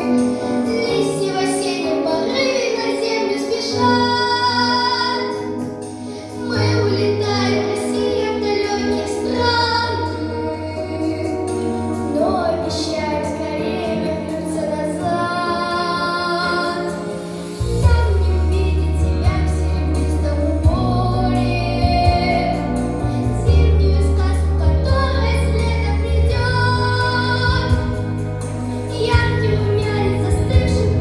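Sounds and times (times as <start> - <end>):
girl singing with vibrato: 0.0 - 5.6, 6.4 - 17.2, 17.8 - 28.0, 28.9 - 31.0
instrumental accompaniment: 0.0 - 31.0
steady bass line: 17.6 - 31.0.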